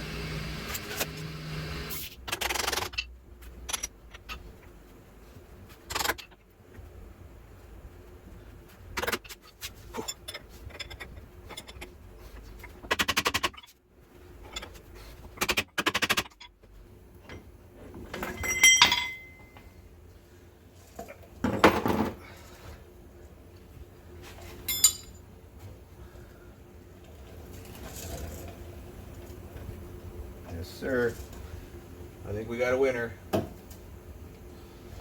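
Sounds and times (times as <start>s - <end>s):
metal tools knocking: 18.3s - 19.5s
ringing metal clinks: 18.4s - 19.6s, 24.7s - 25.2s.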